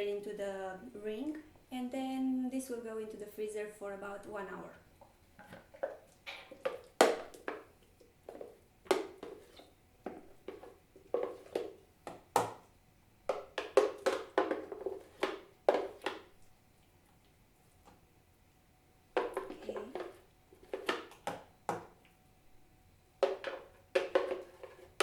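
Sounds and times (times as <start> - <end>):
wet plops of thick mixture: 5.0 - 12.7, 13.3 - 17.0, 19.1 - 22.2, 23.2 - 25.0
utensil knocking and scraping: 13.3 - 16.3, 19.2 - 21.9, 23.2 - 25.0.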